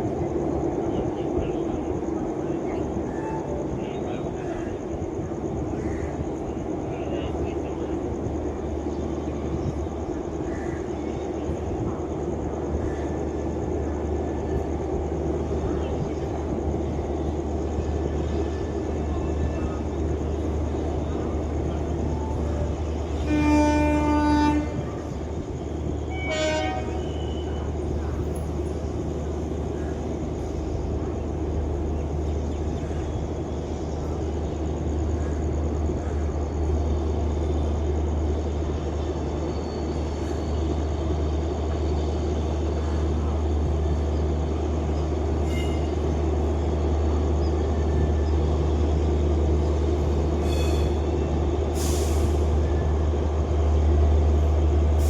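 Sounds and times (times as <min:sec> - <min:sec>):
train rumbling on track: 0:00.0 - 0:55.0
locomotive horn blasts: 0:23.2 - 0:24.8, 0:26.1 - 0:27.3.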